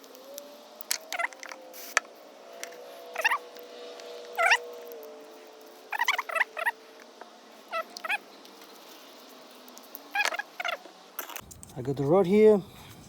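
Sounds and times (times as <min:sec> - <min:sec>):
high-pitched animal calls: 0:02.6 - 0:03.6, 0:04.2 - 0:05.1, 0:05.8 - 0:08.3, 0:10.1 - 0:10.9.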